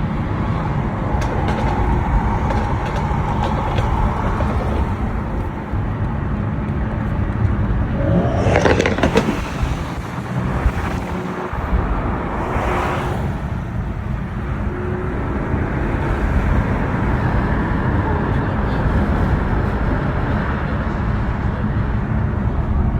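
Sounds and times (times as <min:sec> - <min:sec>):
car engines and road noise: 0:00.0 - 0:22.9
car passing close: 0:07.7 - 0:14.7.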